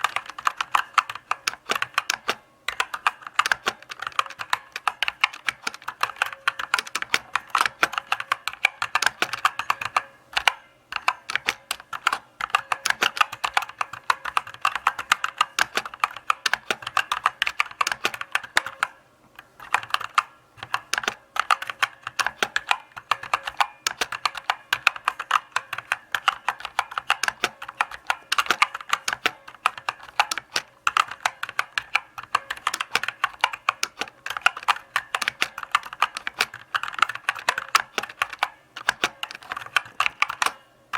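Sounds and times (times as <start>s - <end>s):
mechanical keyboard typing: 0.0s - 40.7s.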